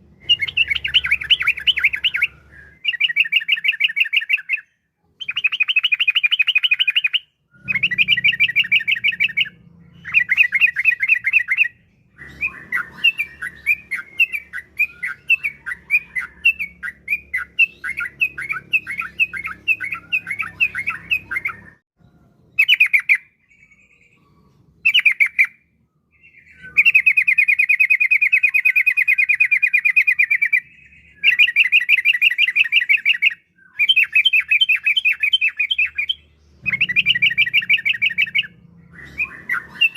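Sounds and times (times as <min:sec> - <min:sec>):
bird singing trilled phrases: 0:00.0 - 0:39.9
bird chattering notes: 0:31.2 - 0:39.9.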